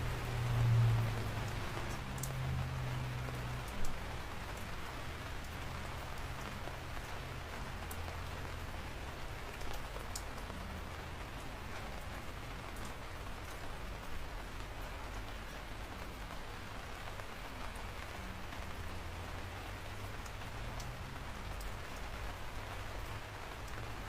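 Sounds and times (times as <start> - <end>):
rain falling on a surface: 0.0 - 24.0.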